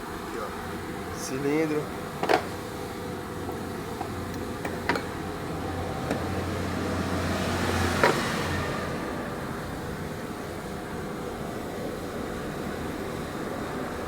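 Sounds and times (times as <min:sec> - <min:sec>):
low rumble of road traffic: 0:00.0 - 0:14.0.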